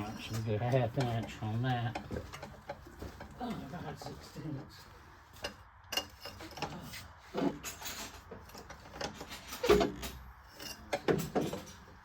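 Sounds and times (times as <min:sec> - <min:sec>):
metal hand tools clanking: 0:00.0 - 0:03.2.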